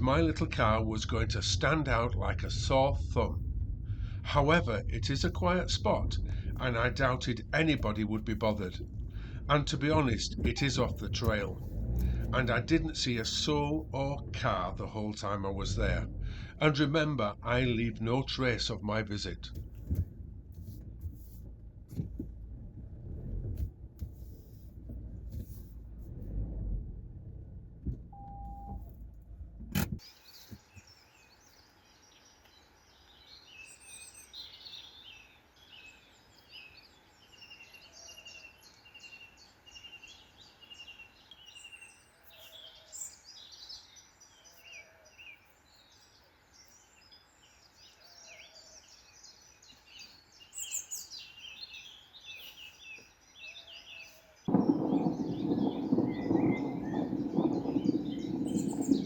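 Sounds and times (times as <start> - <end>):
songbirds singing faintly: 0.0 - 23.4, 30.0 - 59.0
low rumble: 0.0 - 30.0, 54.5 - 59.0.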